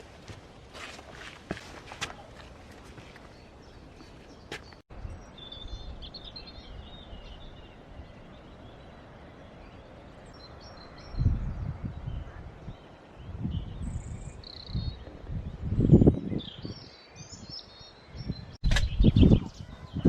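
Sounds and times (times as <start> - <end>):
steady outdoor hiss: 0.0 - 14.6
small birds chirping: 0.4 - 20.0.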